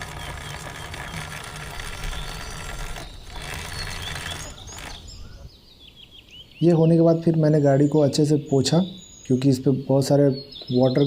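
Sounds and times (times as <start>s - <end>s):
scooter chain and wheel whirring: 0.0s - 5.5s.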